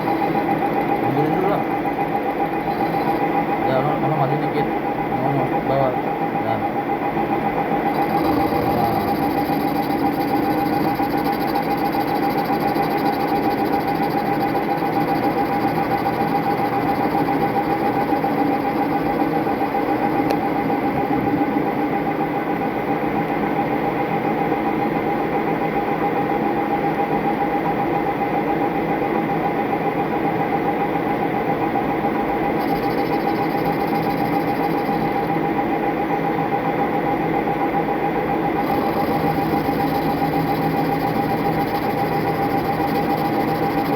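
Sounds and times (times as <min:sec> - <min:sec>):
metal lathe whining and humming: 0:00.0 - 0:22.0, 0:32.4 - 0:36.2, 0:38.3 - 0:43.9.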